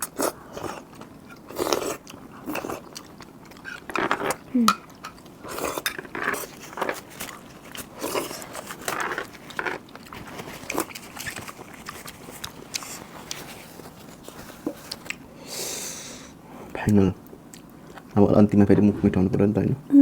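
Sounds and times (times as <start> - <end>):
person chewing and biting: 0.0 - 15.3.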